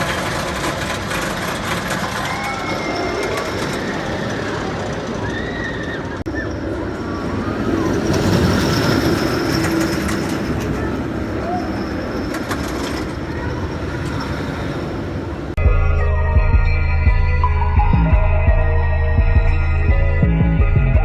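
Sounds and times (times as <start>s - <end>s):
roller coaster train rumbling: 0.0s - 15.6s.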